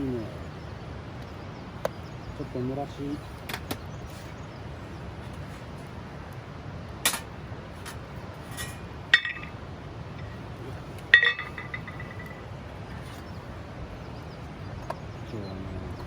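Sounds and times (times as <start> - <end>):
metal cookware clinking: 7.9 - 9.6, 11.0 - 12.4.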